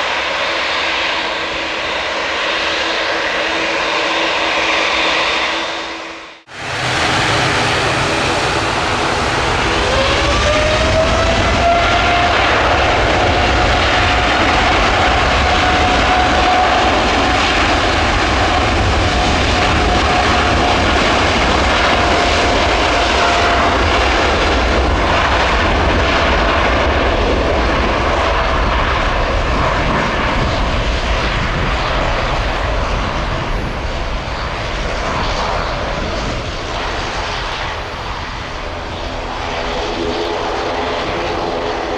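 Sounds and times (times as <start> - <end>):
jet engine roar: 0.0 - 41.9
jet engine whine: 0.0 - 41.9.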